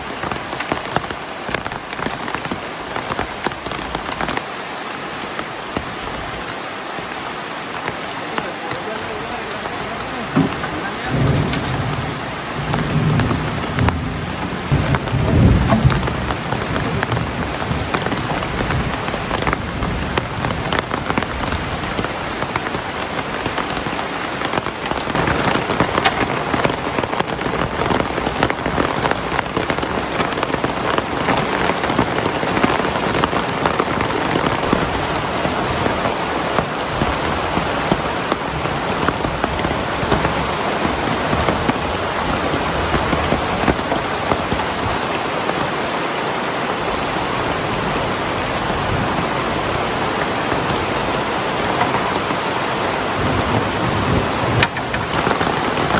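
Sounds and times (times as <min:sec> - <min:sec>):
heavy rain: 0:00.0 - 0:55.9
low thunder rumble: 0:10.1 - 0:21.9.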